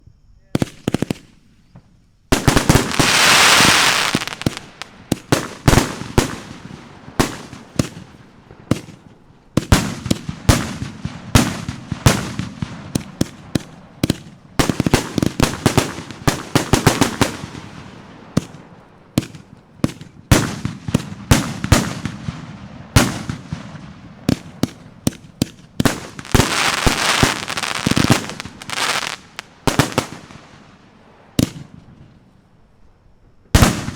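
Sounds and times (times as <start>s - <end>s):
firework bangs and crackling: 0.6s - 32.4s, 33.4s - 33.9s
fireworks hissing rush: 2.3s - 9.0s, 20.4s - 31.2s.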